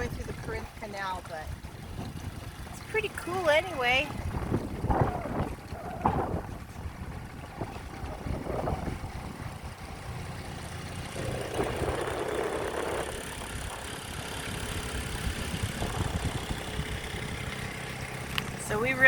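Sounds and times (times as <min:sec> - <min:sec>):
outboard motor running: 0:00.0 - 0:19.0
water rushing: 0:10.6 - 0:19.0.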